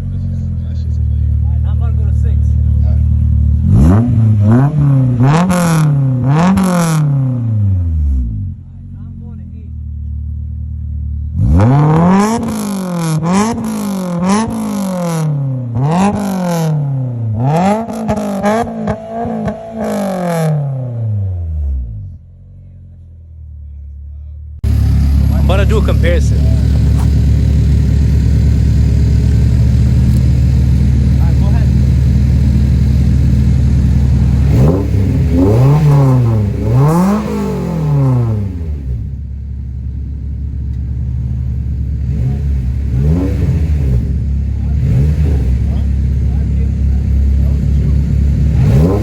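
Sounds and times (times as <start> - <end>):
car engine revving: 0.0 - 49.0.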